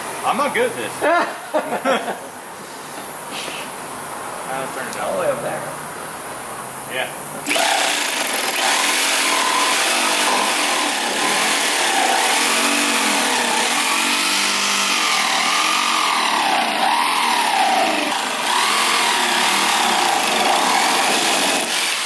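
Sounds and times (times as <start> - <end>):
power saw cutting metal pipe: 7.4 - 22.0.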